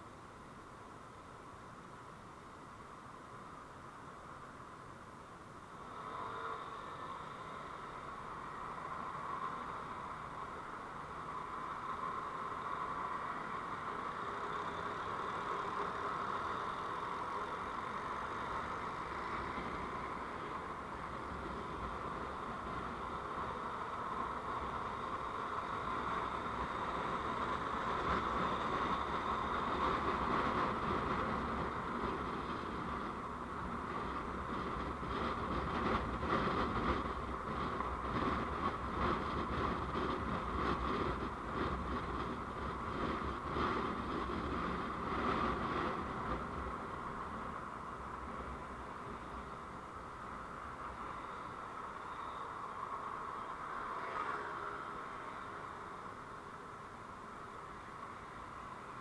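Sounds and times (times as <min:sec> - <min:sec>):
vehicle road and engine noise: 0:00.0 - 0:59.0.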